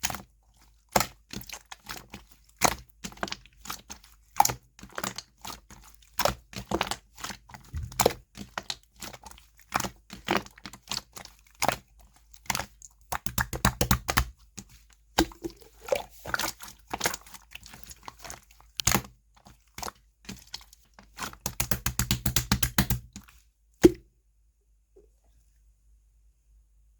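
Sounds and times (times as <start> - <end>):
slime squished by hand popping: 13.2 - 14.3, 21.4 - 23.1, 23.8 - 24.0.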